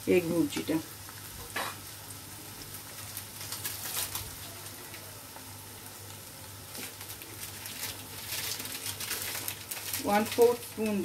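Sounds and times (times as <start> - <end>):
egg frying in oil: 0.0 - 11.0
light crackles: 2.6 - 5.5.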